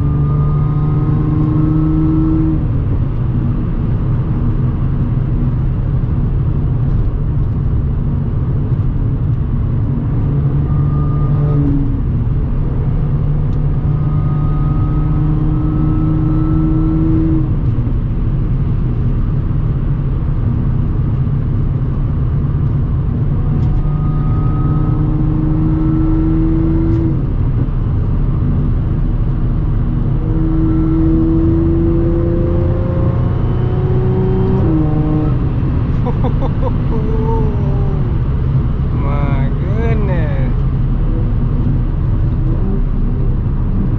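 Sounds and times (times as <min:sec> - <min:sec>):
car engine droning at cruise: 0:00.0 - 0:43.9.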